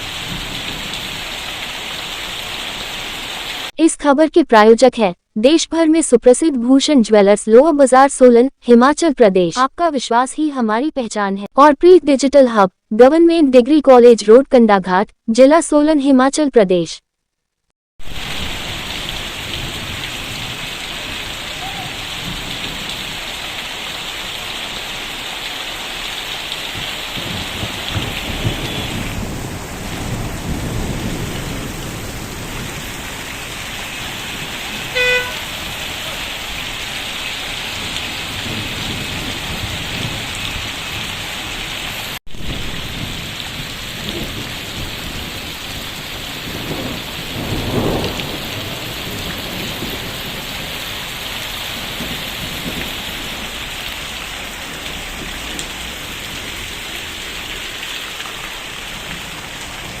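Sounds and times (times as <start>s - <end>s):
heavy rain pouring: 0.0s - 3.8s, 18.0s - 60.0s
rainwater running on road: 0.0s - 3.8s, 18.0s - 60.0s
vehicle horn beep: 28.3s - 29.1s, 34.9s - 35.6s.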